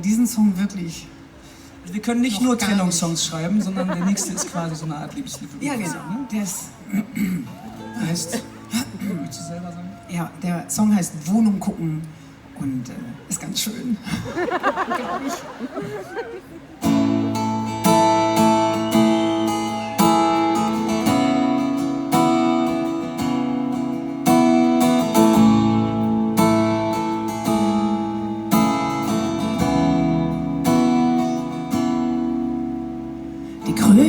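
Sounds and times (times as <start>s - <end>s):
acoustic guitar chords: 16.8s - 34.0s.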